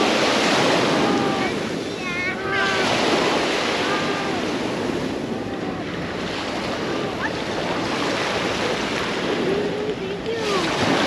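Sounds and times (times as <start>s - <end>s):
faint voices: 0.0s - 11.0s
waves washing onto beach: 0.0s - 11.0s.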